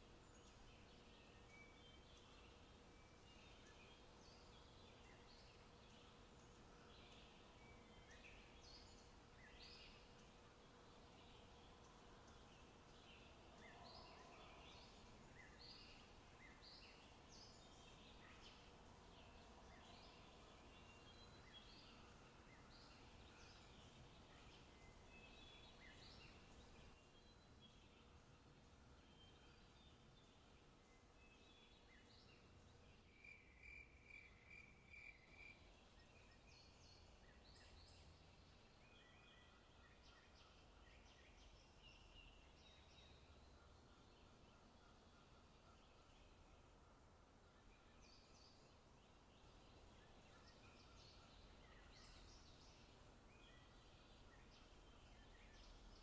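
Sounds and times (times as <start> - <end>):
forest ambience: 0.0 - 56.0
soft steady hiss: 0.0 - 56.0
songbirds chirping: 0.0 - 56.0.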